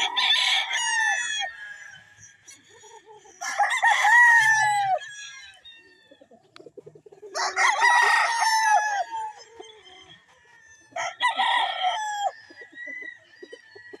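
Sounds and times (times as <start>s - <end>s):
rooster crowing: 0.0s - 2.2s, 3.4s - 6.0s, 7.3s - 9.7s, 10.8s - 14.0s.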